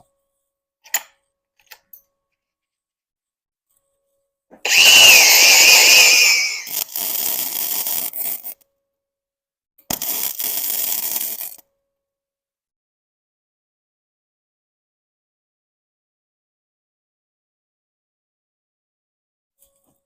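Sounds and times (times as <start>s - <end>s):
power tool whine: 4.6s - 8.5s.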